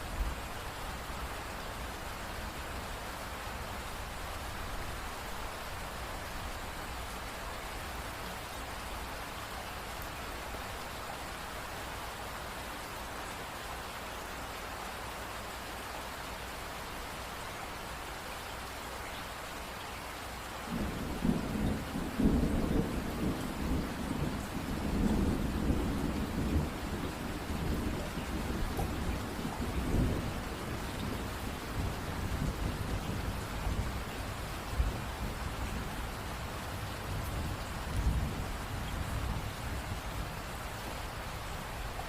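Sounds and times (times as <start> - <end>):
rain falling: 0.0 - 42.0
thunder rumbling: 20.7 - 36.0.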